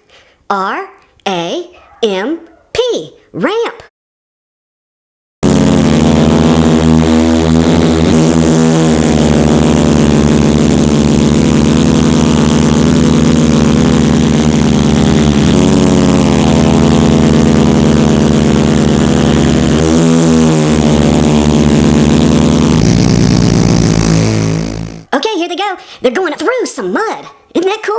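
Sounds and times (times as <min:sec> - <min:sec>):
monster truck engines running: 0:05.6 - 0:25.1.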